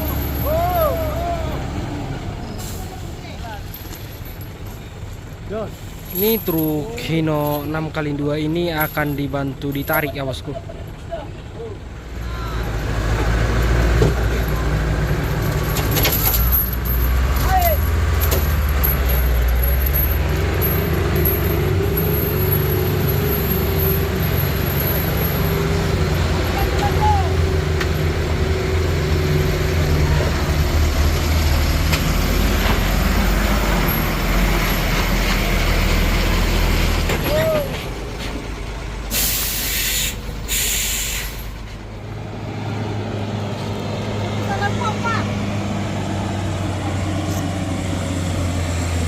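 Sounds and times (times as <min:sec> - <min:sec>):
truck air brakes hissing: 0:00.0 - 0:06.1, 0:38.9 - 0:42.1
truck engines rumbling: 0:00.0 - 0:49.0.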